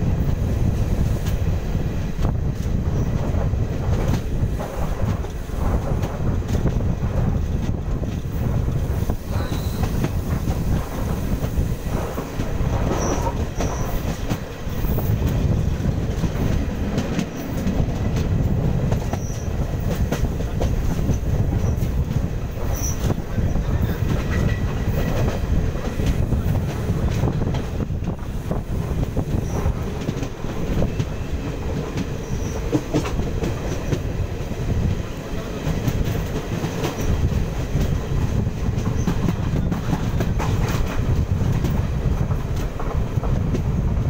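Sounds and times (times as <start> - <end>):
train wheels rumbling on rails: 0.0 - 44.0
clicking over rail joints: 2.1 - 43.8
high wheel squeaks: 9.3 - 10.2, 19.1 - 19.6, 22.7 - 25.2, 32.2 - 32.7.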